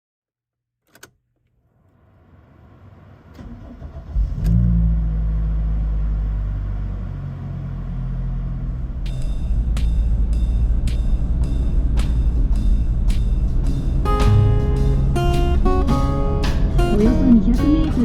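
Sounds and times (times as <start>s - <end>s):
click: 0.8s - 1.6s
car engine idling: 1.8s - 18.0s
low rumble: 4.0s - 18.0s.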